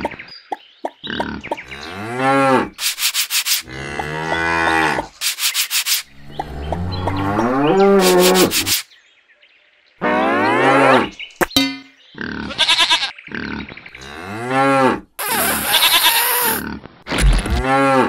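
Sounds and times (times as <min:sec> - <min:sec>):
rasping rubbing strokes: 0:02.8 - 0:03.8, 0:04.9 - 0:06.6, 0:07.6 - 0:08.9.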